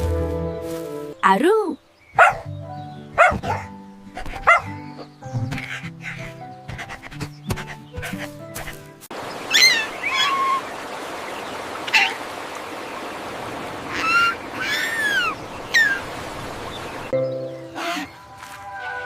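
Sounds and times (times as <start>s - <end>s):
short high bird calls: 9.4s - 10.7s.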